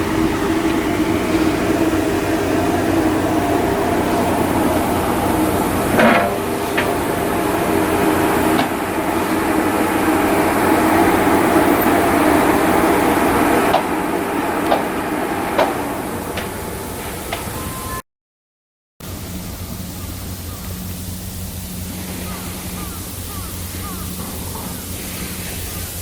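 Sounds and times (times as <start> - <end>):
shipyard machinery drone: 0.0 - 18.0, 19.0 - 26.0
sharp knocks: 14.6 - 15.0.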